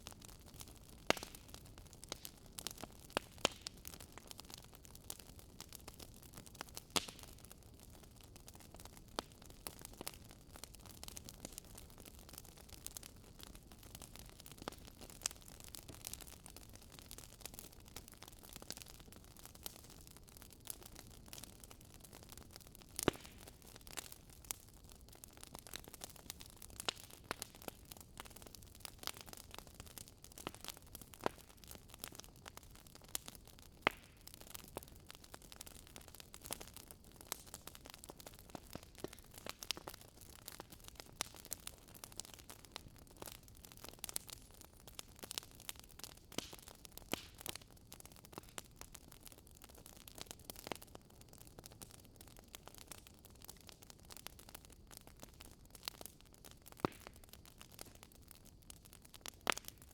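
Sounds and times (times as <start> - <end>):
faint hiss of flames: 0.0 - 59.9
firewood popping and snapping: 0.4 - 18.9, 19.5 - 48.9, 49.6 - 59.9.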